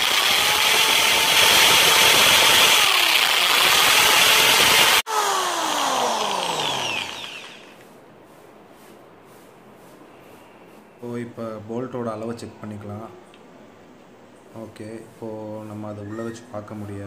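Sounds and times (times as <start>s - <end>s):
electric drill boring into wood: 0.0s - 7.8s.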